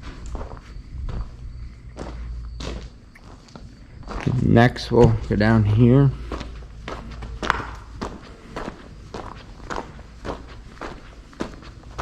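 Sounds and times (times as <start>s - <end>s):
footsteps walking: 0.0s - 12.0s.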